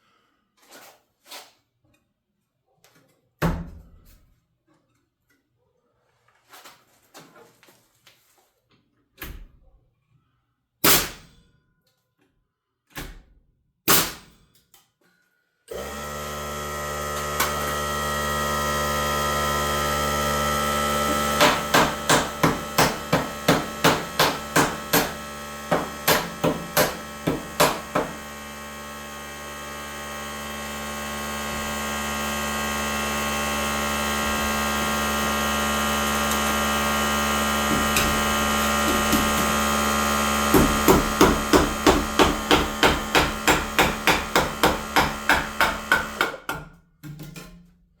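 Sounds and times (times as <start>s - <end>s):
hammer striking nails: 21.0s - 28.3s, 37.6s - 39.8s, 40.4s - 46.8s.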